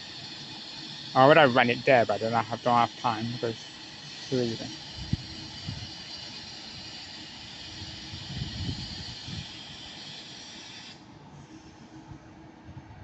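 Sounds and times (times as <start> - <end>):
compressed air hissing from train: 0.0 - 13.0
low rumble of station: 11.2 - 13.0.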